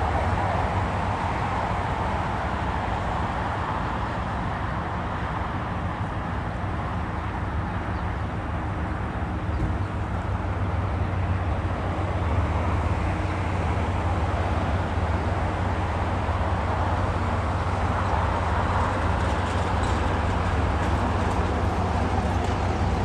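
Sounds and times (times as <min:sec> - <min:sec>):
jet engines rumbling: 0:08.4 - 0:23.0.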